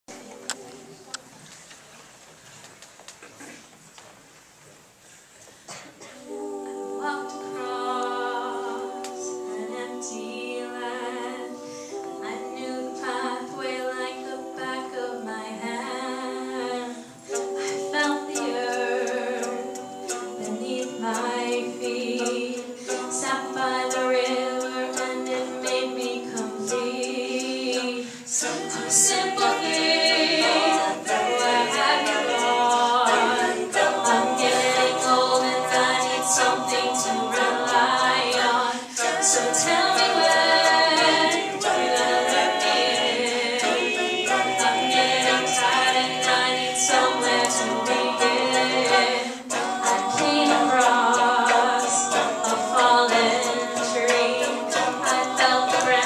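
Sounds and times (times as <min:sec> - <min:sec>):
a cappella group singing harmony: 0:05.7 - 0:56.0.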